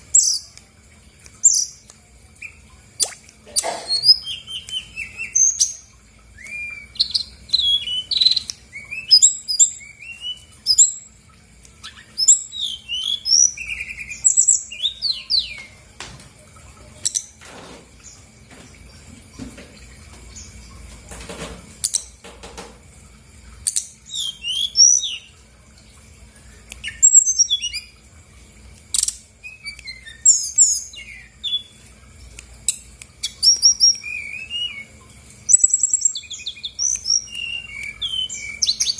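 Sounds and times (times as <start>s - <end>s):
bird singing high chirps and trills: 0.0s - 0.6s, 1.2s - 15.9s, 23.6s - 25.4s, 26.4s - 28.0s, 28.9s - 38.9s
soft knocks: 21.0s - 22.8s.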